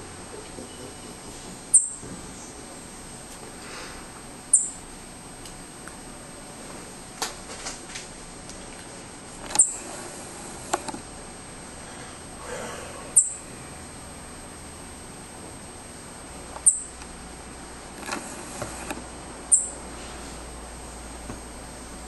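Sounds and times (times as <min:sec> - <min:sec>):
bird high-pitched calls: 0:01.7 - 0:02.0, 0:04.5 - 0:04.8, 0:09.6 - 0:09.9, 0:13.2 - 0:13.5, 0:16.6 - 0:16.9, 0:19.5 - 0:19.8.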